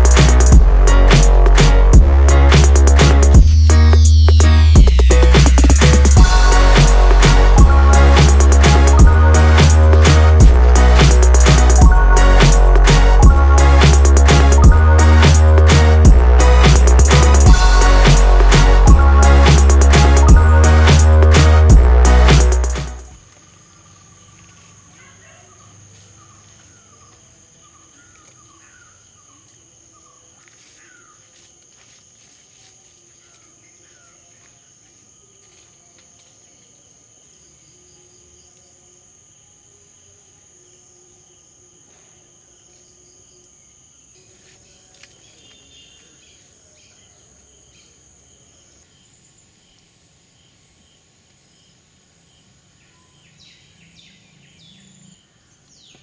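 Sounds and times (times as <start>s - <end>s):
insects trilling: 23.1s - 56.0s.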